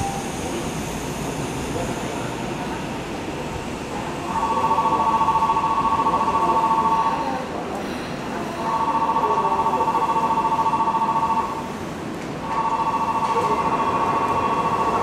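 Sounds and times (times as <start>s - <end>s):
pulsing two-tone buzzer: 12.5s - 15.0s.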